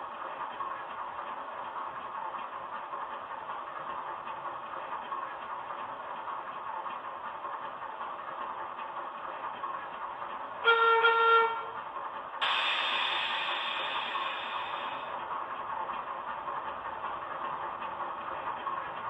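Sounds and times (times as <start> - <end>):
locomotive horn blast: 10.6 - 11.8
diesel engine idling: 11.6 - 19.0
air hiss: 12.4 - 15.1.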